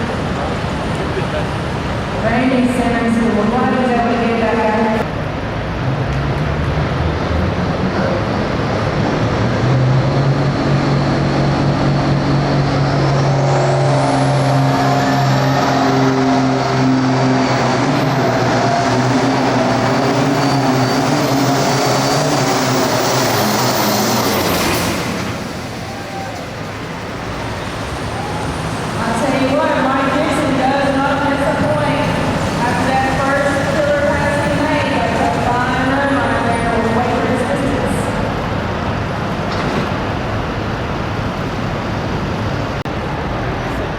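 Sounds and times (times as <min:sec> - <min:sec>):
tractor engine at full throttle: 0:05.1 - 0:35.7.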